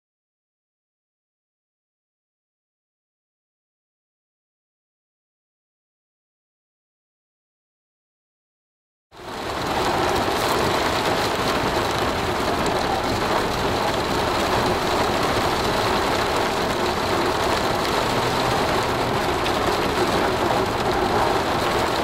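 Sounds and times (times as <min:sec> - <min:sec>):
heavy rain on a vehicle: 0:09.1 - 0:22.0.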